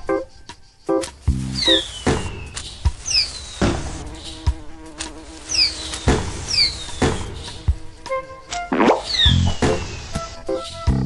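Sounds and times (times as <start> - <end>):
fireworks bursting pops: 1.0 - 7.8, 8.5 - 10.4
whistling rockets falling in pitch: 1.5 - 4.0, 8.7 - 10.1.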